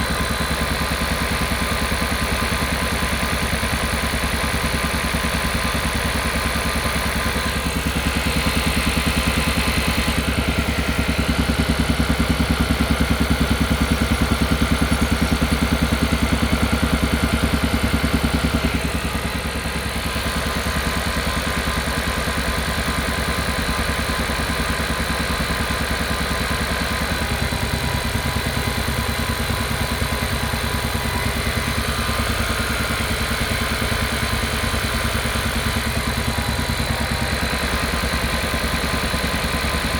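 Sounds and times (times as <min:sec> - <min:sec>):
car engine pulsing: 0:06.7 - 0:21.9, 0:25.6 - 0:39.9.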